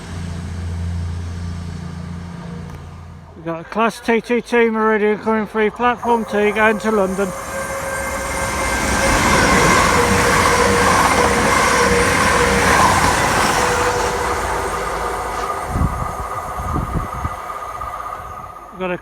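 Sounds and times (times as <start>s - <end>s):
train engine: 0.0s - 19.0s
wheels on rails: 5.2s - 19.0s.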